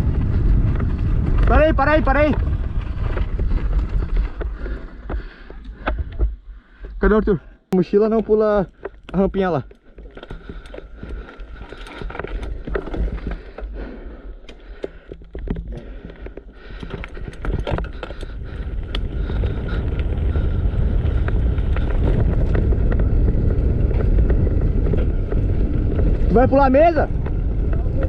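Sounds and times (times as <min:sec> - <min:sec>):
wind on microphone: 0:00.0 - 0:05.2, 0:16.6 - 0:28.0
tyres rumbling on pavement: 0:00.0 - 0:06.8, 0:08.7 - 0:28.0
bike rattling and clicking: 0:00.0 - 0:07.2, 0:07.8 - 0:28.0.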